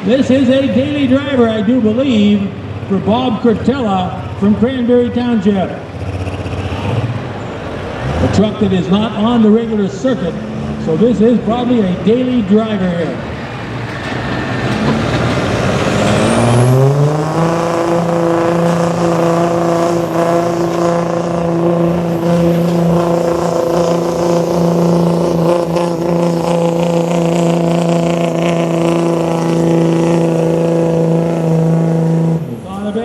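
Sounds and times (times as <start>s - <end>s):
diesel engine at full throttle: 0.0s - 33.0s
turbo whistle: 17.5s - 32.7s.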